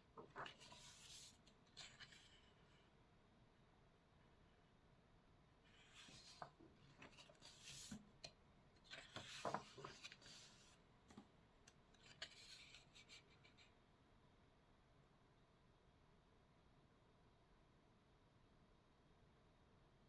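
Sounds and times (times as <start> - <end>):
paper scratching and rustling: 0.2 - 2.5, 5.8 - 8.0, 8.8 - 10.8, 12.0 - 13.6.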